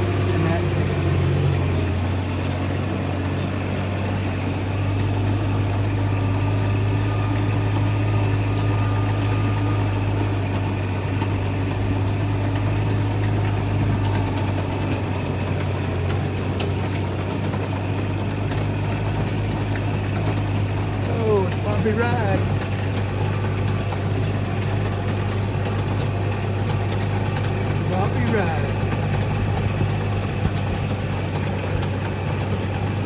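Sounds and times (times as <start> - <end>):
vehicle engine humming: 0.0 - 33.0.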